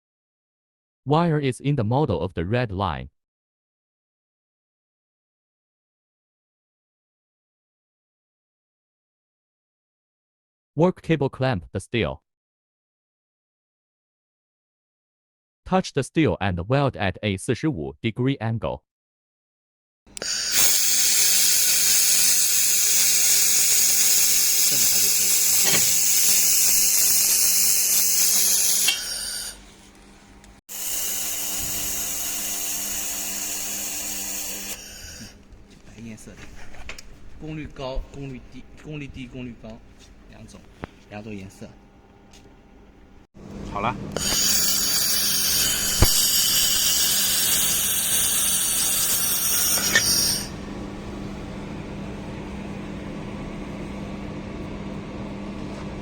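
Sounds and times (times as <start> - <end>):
laser welder hissing: 20.1 - 38.7, 43.6 - 54.2
steady low hum: 21.6 - 56.0
click: 45.6 - 46.8
faint hum: 50.5 - 56.0.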